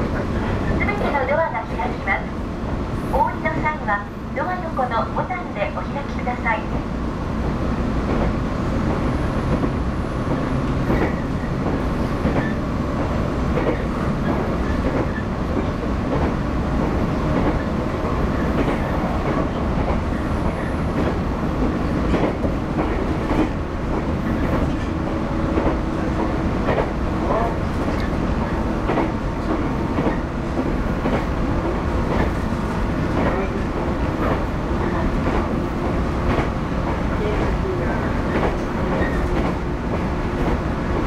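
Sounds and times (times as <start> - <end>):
train wheels rumbling on rail: 0.0 - 41.0
rail-joint clicks: 8.0 - 35.6, 36.2 - 41.0.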